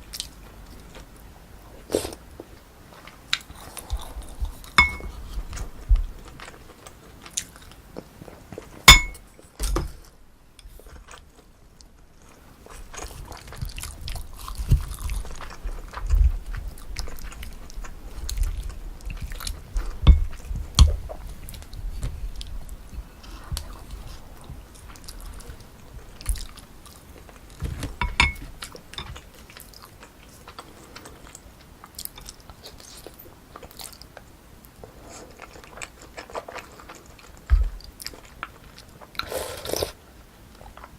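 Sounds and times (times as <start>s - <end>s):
utensil clinking against dish: 4.8s - 5.1s, 8.9s - 9.2s, 28.0s - 29.2s
chewing and biting: 12.2s - 40.0s.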